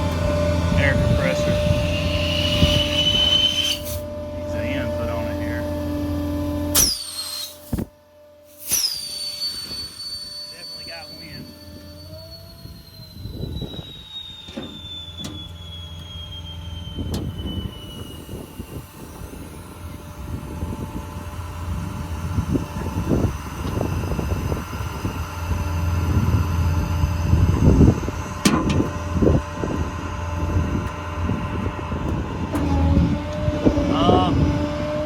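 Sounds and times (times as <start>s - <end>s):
whine falling in pitch: 0.0s - 7.9s, 8.6s - 32.7s
air compressor humming: 0.0s - 35.0s.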